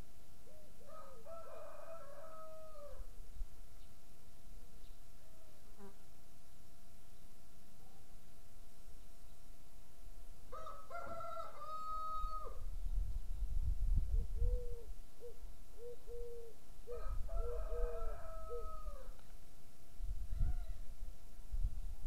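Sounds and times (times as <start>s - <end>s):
long bird calls: 14.4s - 16.6s.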